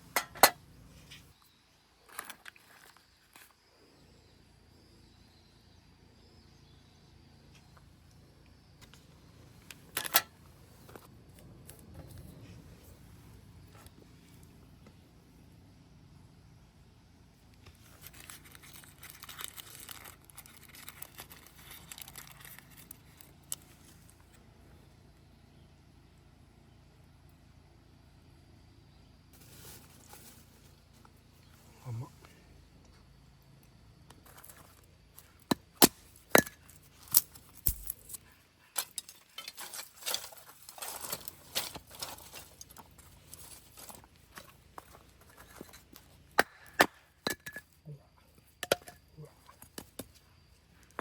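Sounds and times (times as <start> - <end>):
packaging crinkling by hand: 17.9 - 23.6
dry sticks snapping: 35.8 - 40.2.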